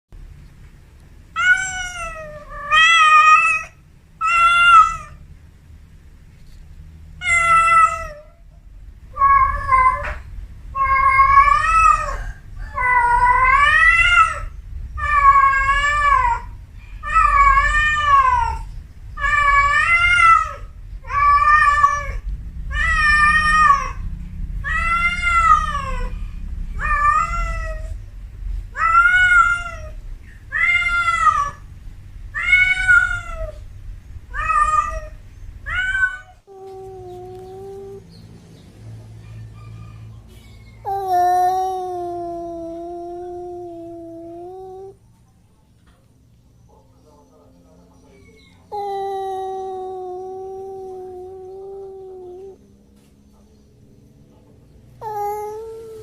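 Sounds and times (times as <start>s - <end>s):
kitten meowing: 1.4s - 5.2s, 7.2s - 8.3s, 10.8s - 24.0s, 24.6s - 28.0s, 34.3s - 38.1s, 40.9s - 45.0s, 48.7s - 52.6s, 55.0s - 56.0s.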